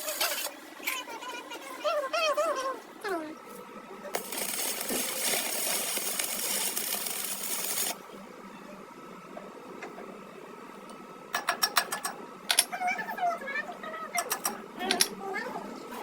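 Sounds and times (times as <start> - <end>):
workshop tool hissing: 4.2 - 8.0.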